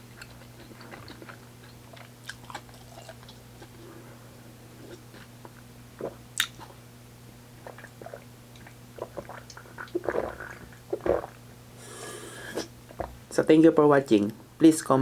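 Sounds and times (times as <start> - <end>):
faint steady hum: 0.0 - 15.0
person chewing: 0.1 - 3.9, 7.6 - 11.4.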